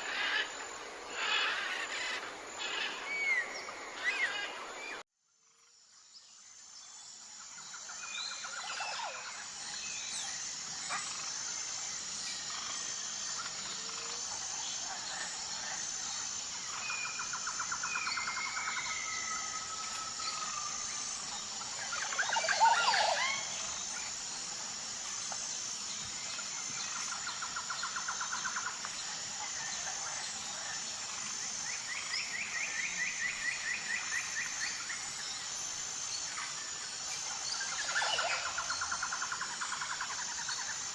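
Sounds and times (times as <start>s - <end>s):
birds chirping and trilling: 0.0s - 5.0s
high-pitched insect drone: 0.0s - 40.9s.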